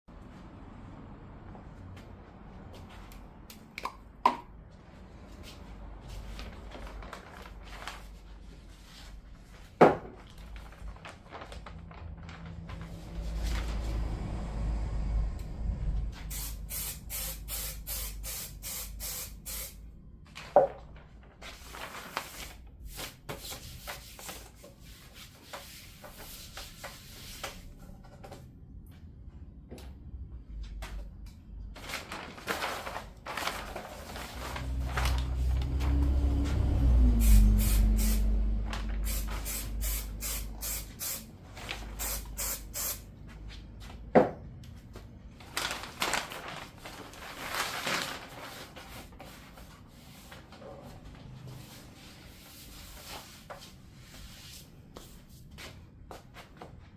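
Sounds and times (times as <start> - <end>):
spray bottle squirting: 16.3 - 19.8, 39.0 - 41.3, 42.0 - 43.0.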